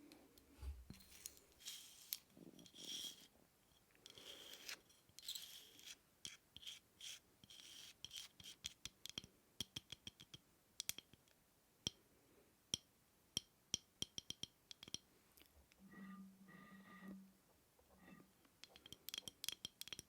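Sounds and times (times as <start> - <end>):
scratching on a hard object: 4.1 - 8.8.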